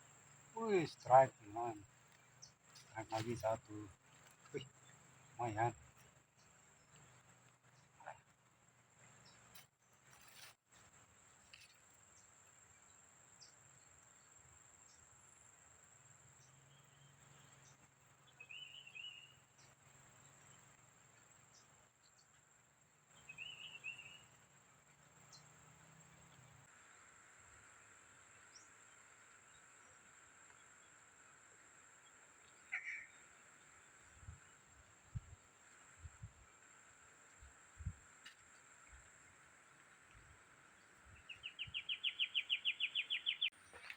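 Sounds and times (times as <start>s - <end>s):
insects droning: 0.0s - 43.9s
warbling bird calls: 32.5s - 33.8s, 40.9s - 43.9s.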